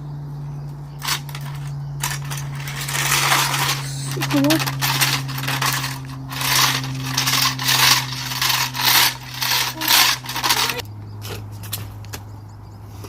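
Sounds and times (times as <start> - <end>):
nozzle rasping over floor: 1.0 - 10.8.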